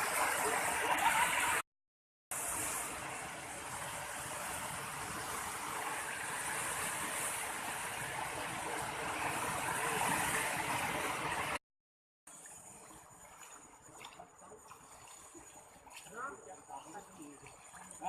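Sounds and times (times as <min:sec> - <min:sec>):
outdoor ambience: 0:02.3 - 0:11.6, 0:12.3 - 0:18.0
river rushing: 0:02.4 - 0:11.6.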